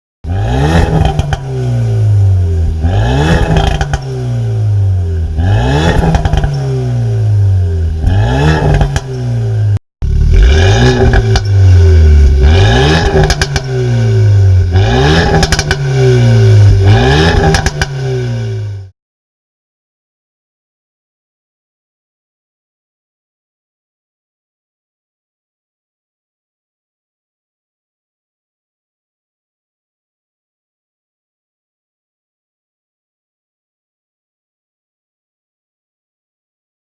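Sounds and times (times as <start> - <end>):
car engine revving: 0.2 - 18.9
exhaust crackles and pops: 8.0 - 9.2, 10.0 - 13.8, 14.6 - 16.0, 16.7 - 18.0.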